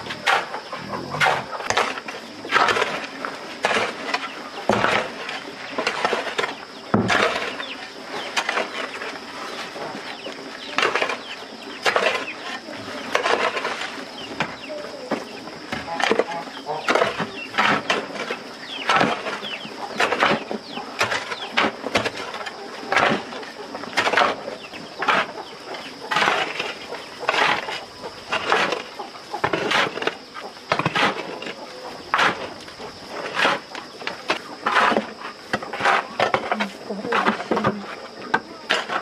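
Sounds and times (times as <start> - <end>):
steady high-pitched whine: 0.0 - 39.0.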